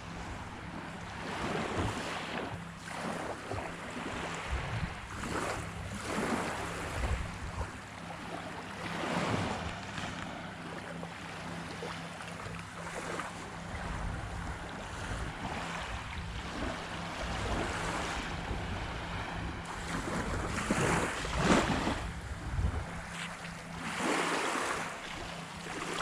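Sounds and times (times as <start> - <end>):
steady low hum: 0.0 - 26.0
wind gusting on microphone: 17.2 - 23.1.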